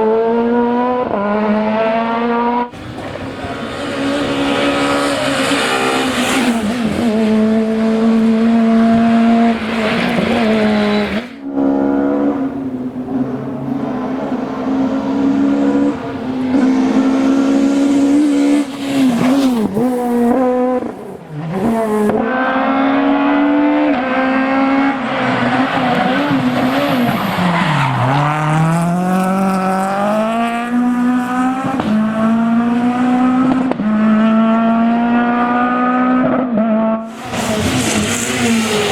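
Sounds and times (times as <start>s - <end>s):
rally car engine at high revs: 0.0s - 38.9s.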